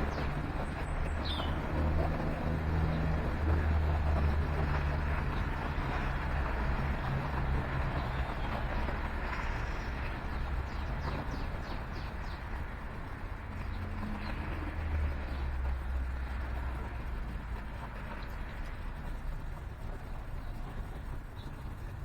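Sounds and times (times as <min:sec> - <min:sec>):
small birds chirping: 0:00.0 - 0:03.5, 0:07.4 - 0:16.0.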